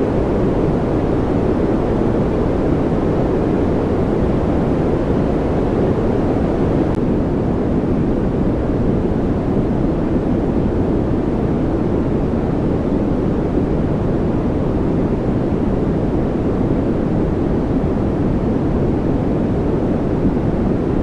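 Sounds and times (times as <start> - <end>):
white noise: 0.0 - 7.1.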